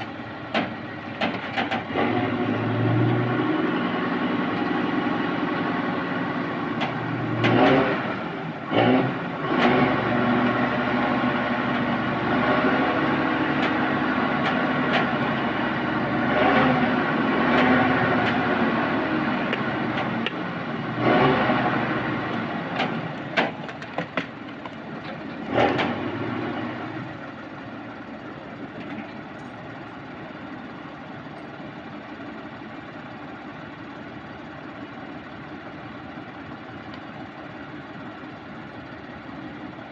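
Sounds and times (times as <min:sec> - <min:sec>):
diesel engine running: 0:00.0 - 0:39.9
sharp knocks and clanks: 0:00.5 - 0:02.0, 0:22.7 - 0:26.0.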